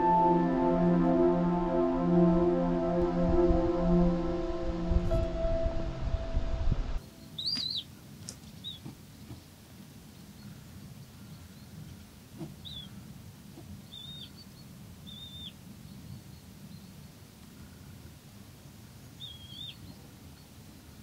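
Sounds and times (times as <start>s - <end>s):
background music: 0.0s - 7.0s
quiet outdoor ambience: 0.0s - 21.0s
small bird chirping: 7.0s - 9.5s, 10.2s - 13.0s, 13.6s - 17.2s, 19.1s - 20.6s.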